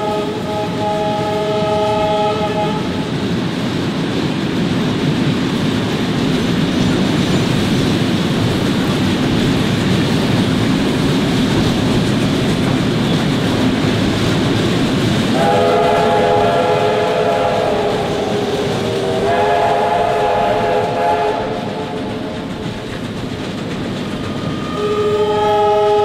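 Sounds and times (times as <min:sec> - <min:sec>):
train horn: 0:00.0 - 0:03.1, 0:15.3 - 0:22.4, 0:24.5 - 0:26.0
train wheels rumbling on rails: 0:00.0 - 0:26.0.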